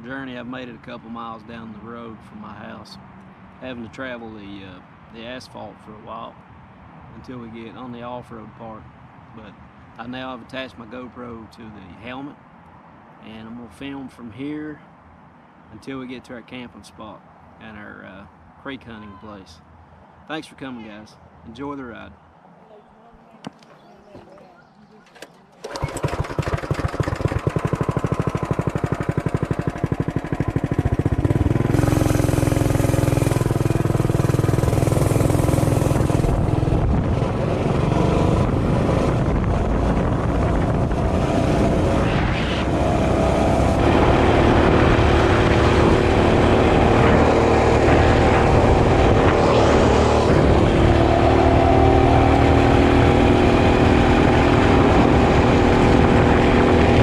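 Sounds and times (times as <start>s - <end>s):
mini bike engine running: 25.0s - 39.2s.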